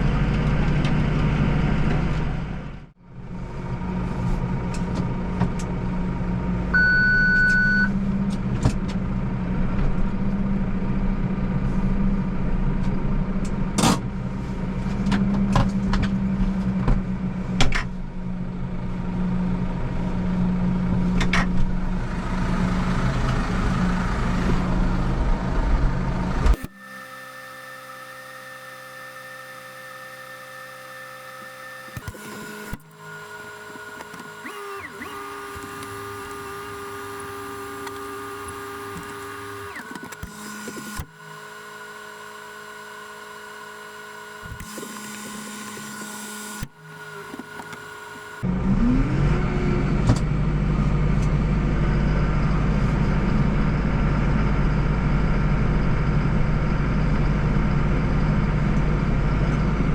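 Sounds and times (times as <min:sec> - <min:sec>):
tractor engine running: 0:00.0 - 0:06.8, 0:07.4 - 0:26.7
rising whine: 0:21.6 - 0:59.9.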